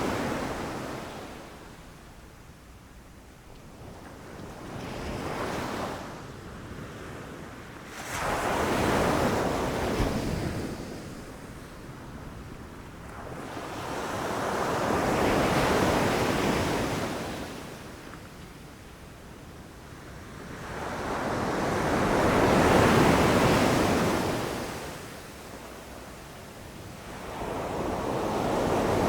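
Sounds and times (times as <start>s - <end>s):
ocean waves surging onto shore: 20.7s - 26.2s.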